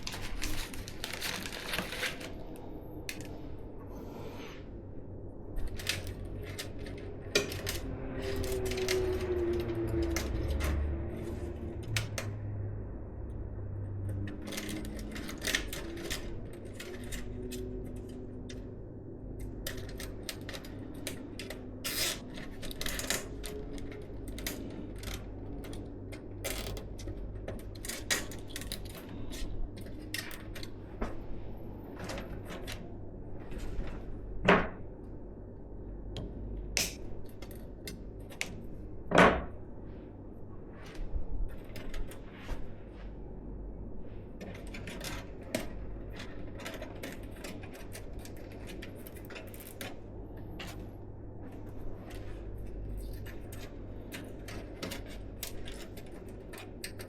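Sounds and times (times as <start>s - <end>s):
computer parts clicking and tapping: 36.8s - 38.6s, 52.8s - 57.0s.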